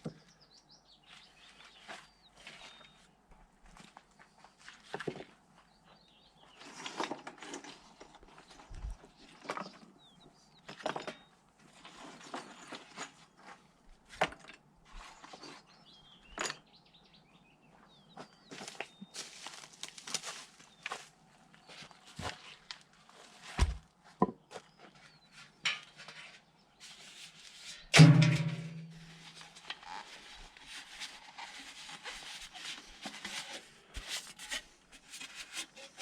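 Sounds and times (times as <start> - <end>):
small birds chirping: 0.0 - 3.2, 5.6 - 6.9, 7.9 - 11.4, 14.9 - 19.6, 24.4 - 27.1
knocks and scrapes of handwork: 25.7 - 36.0.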